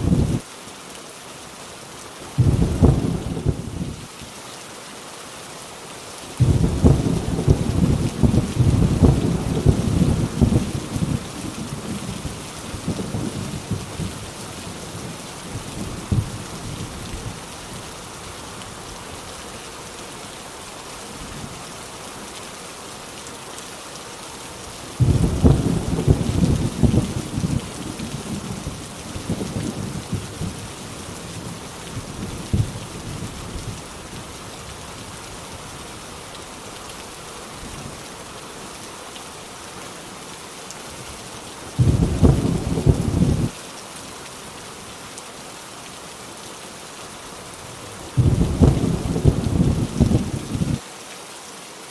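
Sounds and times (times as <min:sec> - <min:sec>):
heavy rain on a tin roof: 0:00.0 - 0:51.9
thunder cracking and rumbling: 0:02.4 - 0:03.9, 0:06.4 - 0:14.2, 0:15.0 - 0:16.8, 0:25.0 - 0:30.7, 0:31.3 - 0:33.7, 0:41.8 - 0:43.5, 0:48.2 - 0:50.8.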